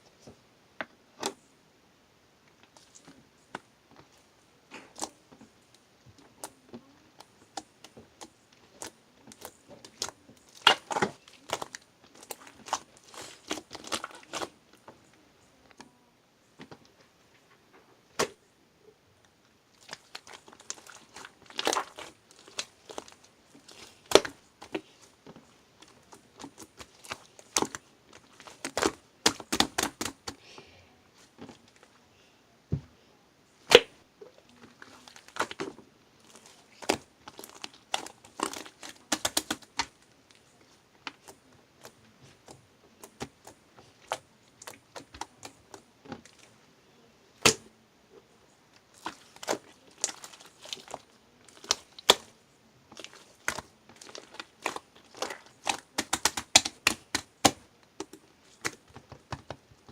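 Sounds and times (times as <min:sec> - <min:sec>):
faint crinkling: 0:02.4 - 0:59.9.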